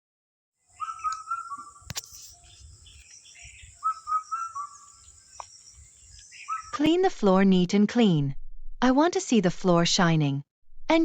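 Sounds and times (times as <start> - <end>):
birds chirping: 0.6 - 6.9.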